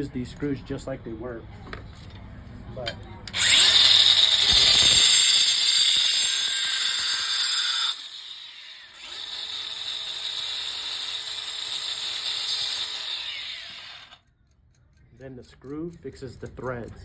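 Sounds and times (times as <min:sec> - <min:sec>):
angle grinder cutting metal: 0:03.3 - 0:14.2.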